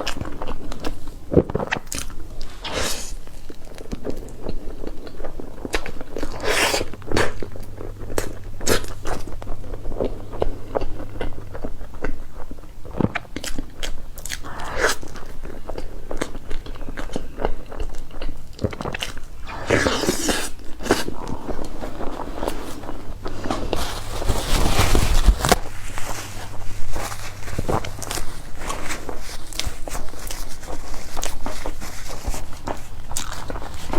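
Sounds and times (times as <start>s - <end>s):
person chewing cake: 0.0s - 33.9s.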